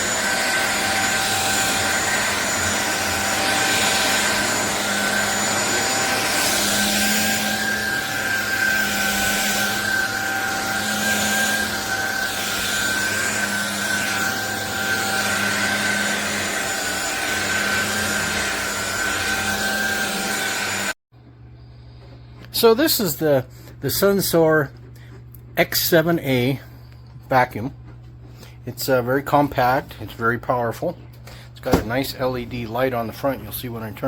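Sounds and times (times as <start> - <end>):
vacuum cleaner motor whine: 0.0 - 23.4, 31.3 - 34.0.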